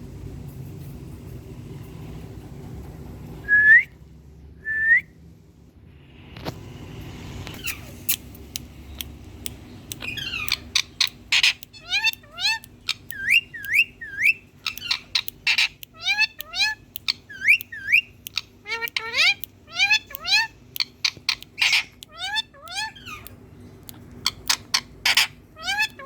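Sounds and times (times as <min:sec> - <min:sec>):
parakeet calling: 0:07.6 - 0:26.0.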